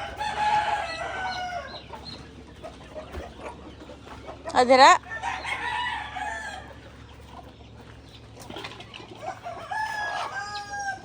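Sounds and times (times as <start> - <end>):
rooster crowing: 0.0 - 1.9, 5.0 - 6.9, 9.2 - 11.0.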